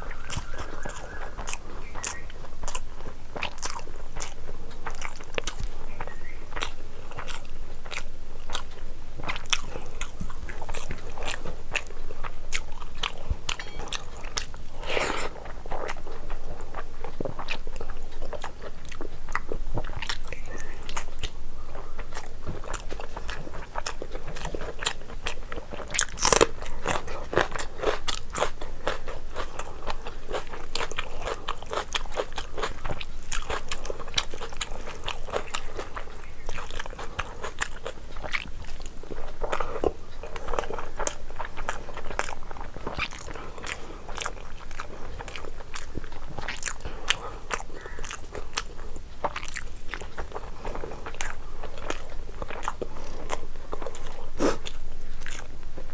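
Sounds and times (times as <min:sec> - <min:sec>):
person chewing food: 0:00.0 - 0:55.9
crunchy bites: 0:22.0 - 0:55.5.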